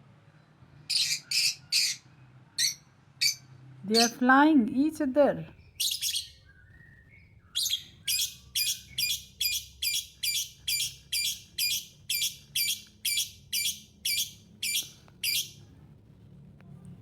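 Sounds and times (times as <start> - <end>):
parrot harsh chirps: 0.9 - 4.2, 5.8 - 6.4, 7.6 - 15.6.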